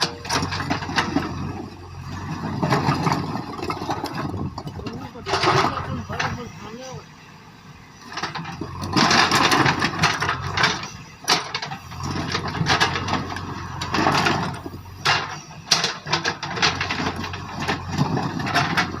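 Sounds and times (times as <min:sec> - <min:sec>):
diesel engine running: 0:00.0 - 0:19.0
stones scraping and clattering: 0:02.2 - 0:06.4, 0:08.2 - 0:19.0.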